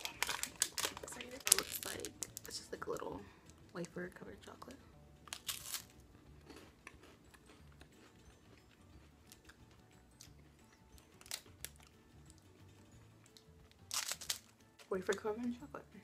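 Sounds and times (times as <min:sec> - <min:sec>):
crisp crunch of wafer bite: 0:00.0 - 0:02.5, 0:05.3 - 0:07.5, 0:11.2 - 0:11.9, 0:13.8 - 0:14.5
quiet chewing: 0:05.3 - 0:14.9.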